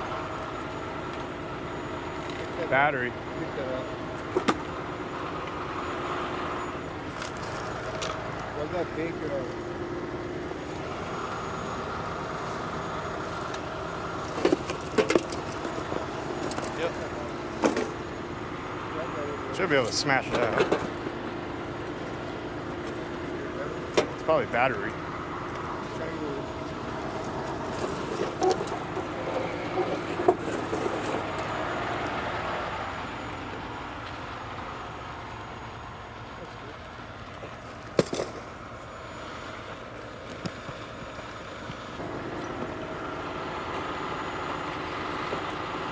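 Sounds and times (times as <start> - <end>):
truck engine running: 0.0 - 45.9
vehicle passing on road: 4.1 - 36.2.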